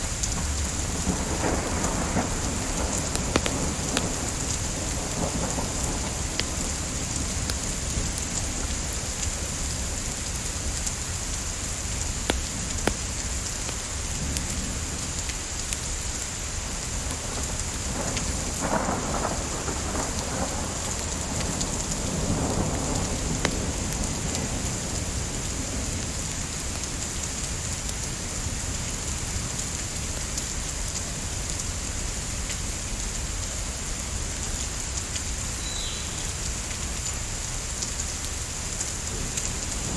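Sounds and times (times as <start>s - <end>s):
rain hiss: 0.0s - 39.9s
distant thunder rumble: 0.1s - 10.1s, 16.7s - 26.8s, 39.1s - 39.9s.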